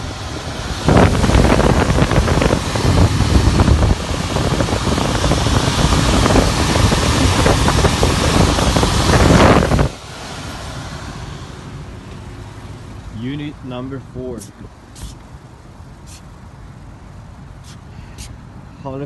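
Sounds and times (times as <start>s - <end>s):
wind buffeting the microphone: 0.0s - 10.0s.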